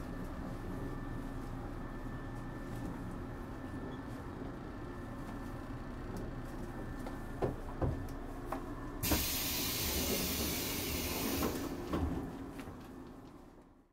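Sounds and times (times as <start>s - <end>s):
train running rumble: 0.0s - 13.6s
compressed air hiss: 9.0s - 11.7s.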